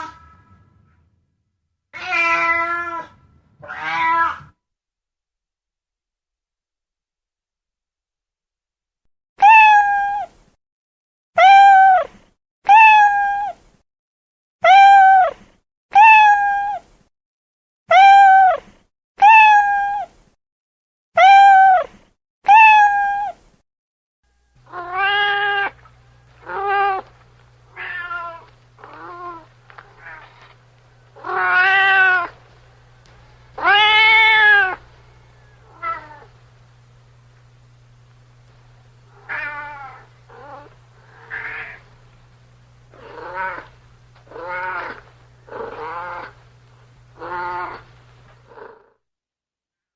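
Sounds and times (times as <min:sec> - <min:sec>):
cat meowing: 0:00.0 - 0:01.0, 0:01.9 - 0:04.6, 0:09.4 - 0:10.3, 0:19.2 - 0:20.1, 0:24.6 - 0:30.6, 0:31.2 - 0:32.4, 0:33.6 - 0:36.4, 0:39.1 - 0:41.9, 0:42.9 - 0:46.4, 0:47.2 - 0:47.9
lower-pitched cat meowing: 0:00.0 - 0:01.0, 0:01.9 - 0:04.6, 0:09.4 - 0:10.4, 0:12.7 - 0:13.6, 0:16.0 - 0:16.9, 0:19.2 - 0:20.2, 0:21.2 - 0:23.4, 0:24.6 - 0:25.8, 0:26.4 - 0:27.1, 0:27.7 - 0:30.6, 0:31.2 - 0:32.4, 0:33.6 - 0:34.8, 0:35.6 - 0:36.3, 0:39.1 - 0:41.9, 0:42.9 - 0:46.4, 0:47.2 - 0:47.9
steady low hum: 0:24.3 - 0:48.6.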